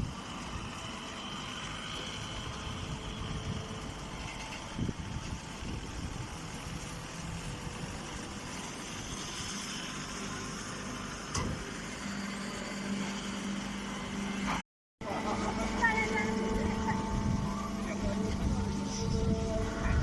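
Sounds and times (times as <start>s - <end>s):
baler machine droning: 0.0s - 20.0s
low hum: 11.8s - 20.0s.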